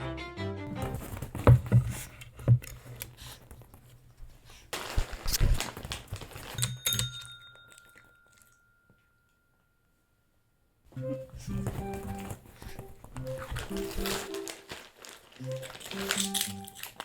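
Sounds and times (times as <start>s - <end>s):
thumps: 0.7s - 2.9s
rustling: 0.7s - 8.0s, 11.1s - 17.0s
desk call bell ding: 6.6s - 10.2s.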